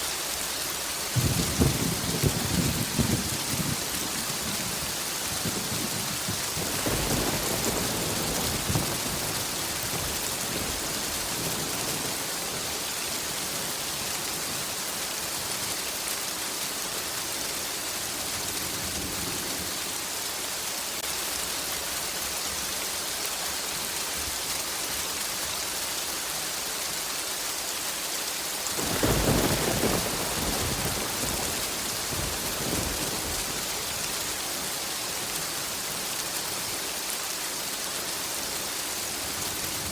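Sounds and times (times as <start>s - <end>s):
heavy rain: 0.0s - 39.9s
thunder rumbling: 1.2s - 12.9s, 28.8s - 34.8s.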